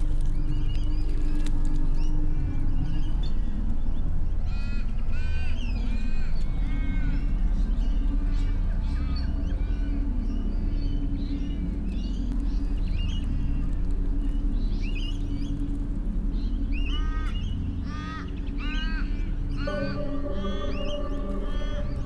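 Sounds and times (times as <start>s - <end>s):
bird calls: 0.0s - 22.0s
low steady drone: 0.0s - 22.0s
harsh repeated bird calls: 16.4s - 22.0s
held tone: 19.7s - 22.0s.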